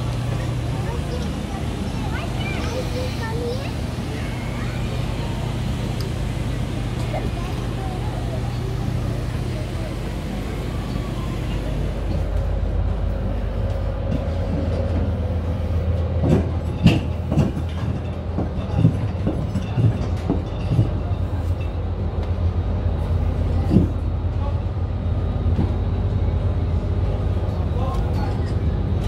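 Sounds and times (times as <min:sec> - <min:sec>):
ship machinery rumble: 0:00.0 - 0:29.0.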